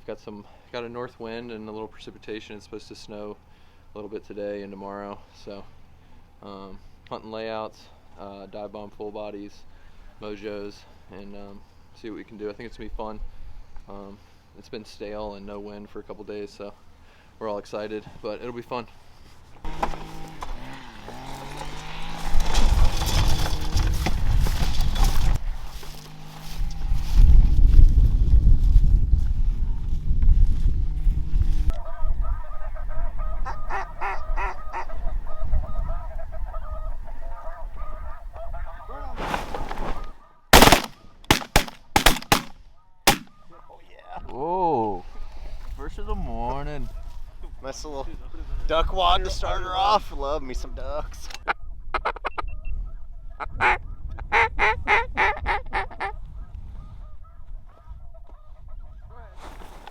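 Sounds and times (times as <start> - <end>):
honking goose calls: 31.7 - 39.2, 53.4 - 56.2
duck quacking: 31.8 - 35.0
loud shotgun shots: 40.6 - 43.4.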